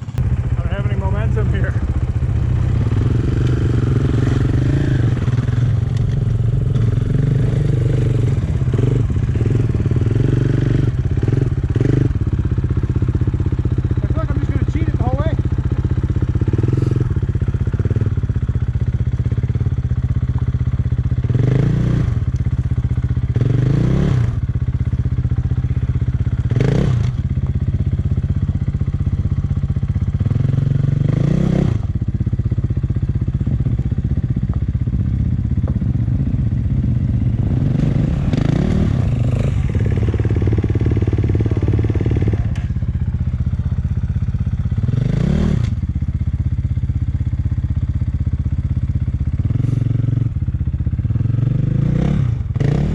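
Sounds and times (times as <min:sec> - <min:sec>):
dirt bike engine revving: 0:00.0 - 0:18.4, 0:21.2 - 0:22.3, 0:23.3 - 0:24.5, 0:26.4 - 0:27.3, 0:30.1 - 0:32.0, 0:35.2 - 0:42.8, 0:44.7 - 0:45.8, 0:51.2 - 0:52.9
engine clatter: 0:00.0 - 0:51.2.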